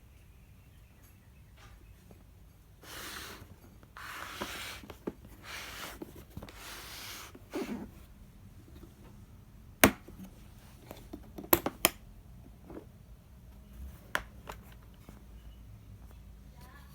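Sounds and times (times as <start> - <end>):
packaging rustling and sliding: 2.8 - 8.2.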